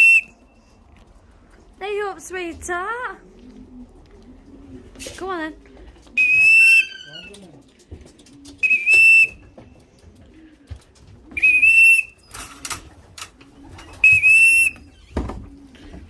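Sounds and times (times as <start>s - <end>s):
short whistle blasts: 8.6s - 9.4s.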